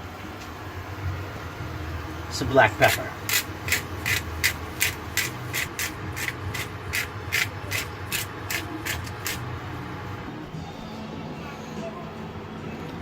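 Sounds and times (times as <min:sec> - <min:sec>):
pepper mill grinding: 0:02.8 - 0:09.5.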